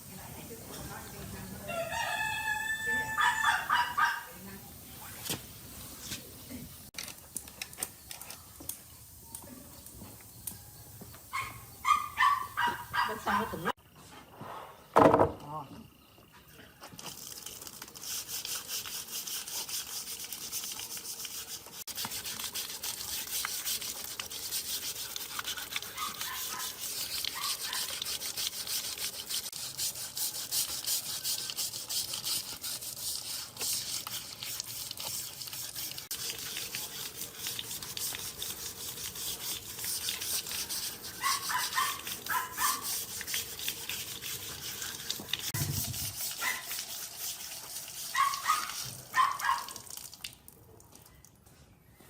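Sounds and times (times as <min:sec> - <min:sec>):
hand-sanding wood: 0:18.0 - 0:49.2.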